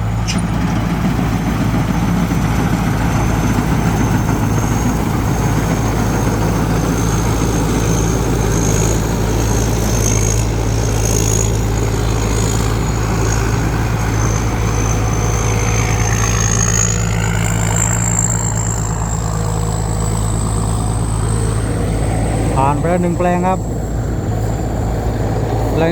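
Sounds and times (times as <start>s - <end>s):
combine harvester engine running: 0.0s - 25.9s
high steady whine: 0.0s - 25.9s.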